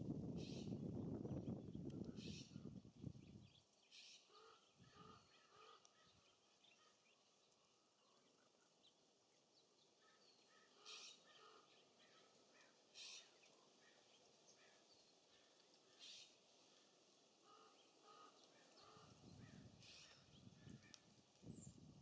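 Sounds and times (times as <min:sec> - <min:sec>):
wind gust on microphone: 0:00.0 - 0:03.6, 0:19.0 - 0:22.0
songbirds chirping: 0:00.4 - 0:22.0.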